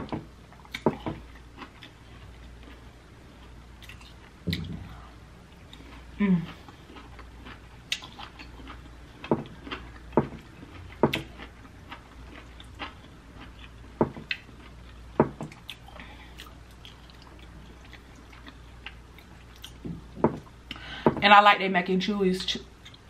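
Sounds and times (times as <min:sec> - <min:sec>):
close chewing: 0:05.5 - 0:19.8.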